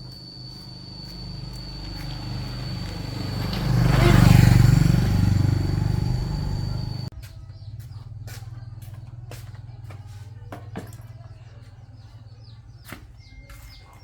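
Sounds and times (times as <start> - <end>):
low hum with clicks: 0.0 - 4.0
steady high whine: 0.0 - 7.1
engine running: 0.0 - 7.4.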